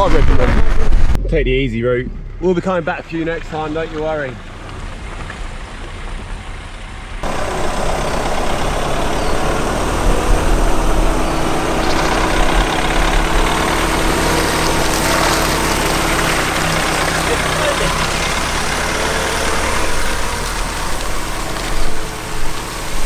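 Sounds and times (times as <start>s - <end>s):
vehicle engine idling: 7.2s - 23.0s.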